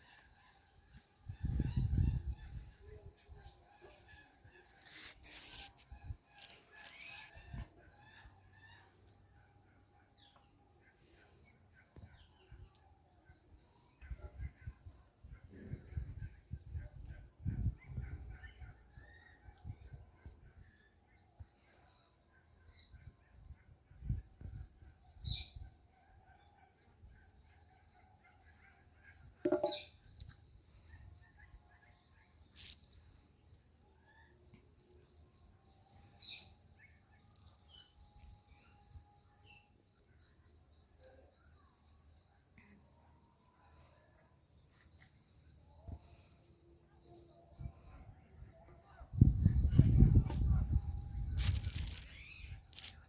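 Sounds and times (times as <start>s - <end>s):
high-pitched twittering: 49.2s - 53.0s.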